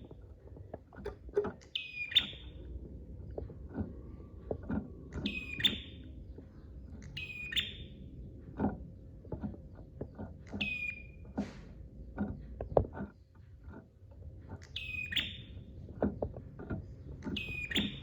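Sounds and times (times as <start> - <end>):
soft low knocks: 0.0 - 1.6
prinia calling: 1.4 - 2.6, 5.2 - 6.0, 17.3 - 18.0.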